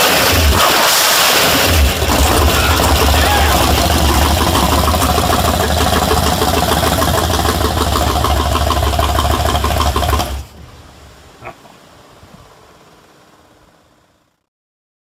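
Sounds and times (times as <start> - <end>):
boat engine running: 0.0 - 11.4.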